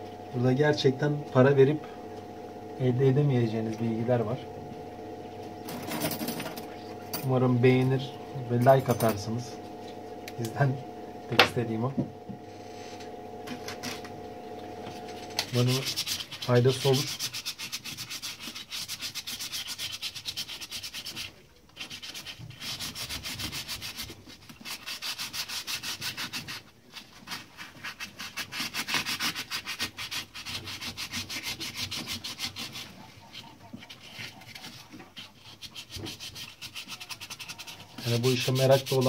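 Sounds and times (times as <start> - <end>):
hand scrubbing strokes: 14.8 - 39.0.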